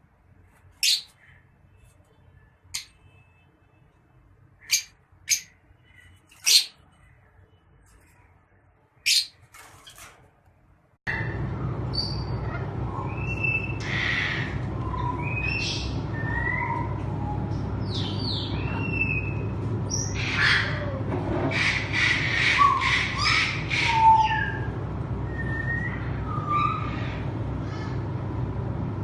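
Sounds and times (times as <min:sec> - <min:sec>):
parrots chirping and squawking: 0:00.8 - 0:01.4, 0:02.7 - 0:03.0, 0:04.6 - 0:07.1, 0:09.0 - 0:10.0, 0:12.0 - 0:17.0, 0:17.8 - 0:24.7
steady low hum: 0:10.7 - 0:29.0.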